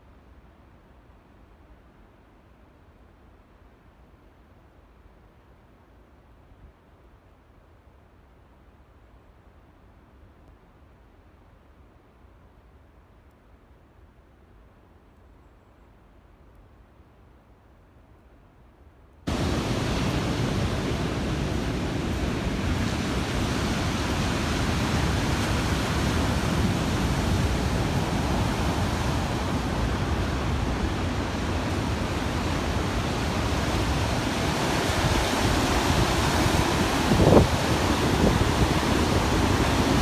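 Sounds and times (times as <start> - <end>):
steady rushing noise: 19.3 - 40.0.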